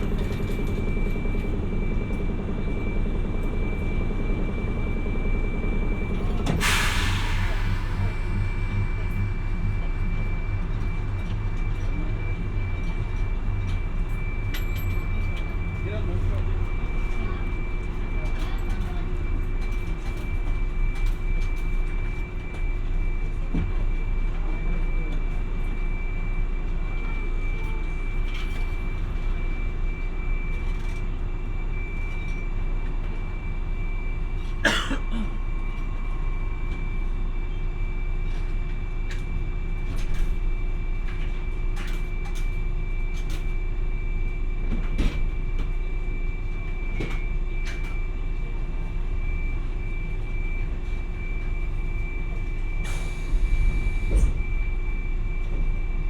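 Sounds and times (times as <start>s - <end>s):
tram rumbling: 0.0s - 25.7s.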